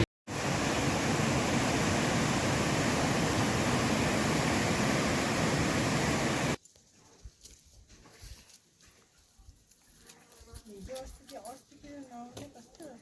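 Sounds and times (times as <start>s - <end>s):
steady rushing noise: 0.3s - 6.6s.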